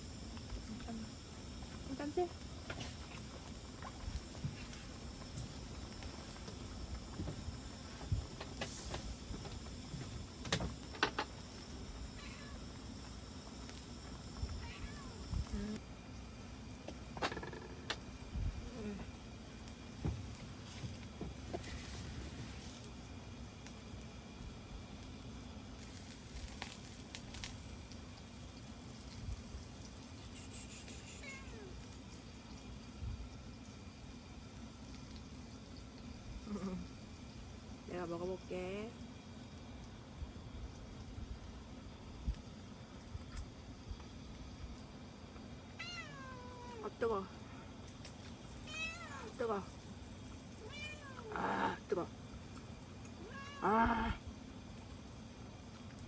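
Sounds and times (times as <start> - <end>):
cat meowing: 12.2 - 12.6, 14.6 - 15.2, 31.1 - 31.8, 45.8 - 46.8, 48.7 - 49.3, 50.6 - 51.8, 53.2 - 54.2.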